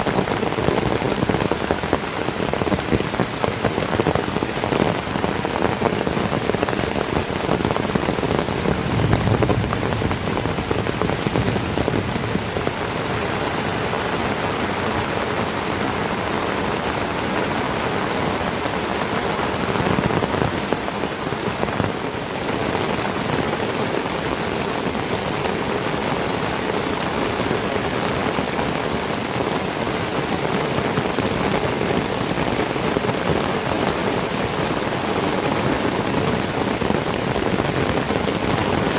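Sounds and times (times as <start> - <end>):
heavy rain on leaves: 0.0 - 38.9
low rumbles: 8.1 - 14.3.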